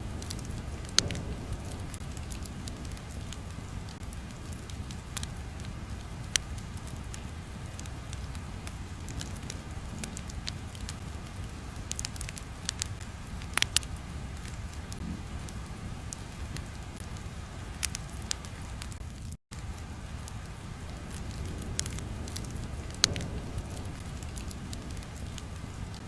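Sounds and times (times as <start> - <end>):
crackling fire: 0.0 - 26.0
sharp pops: 21.1 - 25.6.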